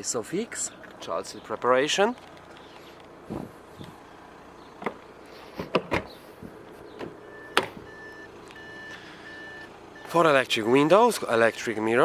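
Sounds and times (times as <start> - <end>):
sharp clicks and knocks: 4.8 - 5.0
car warning beeps: 6.8 - 10.4.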